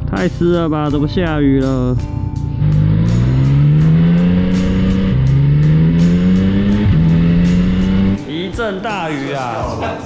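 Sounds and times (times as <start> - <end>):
motorcycle engine accelerating: 2.4 - 8.4.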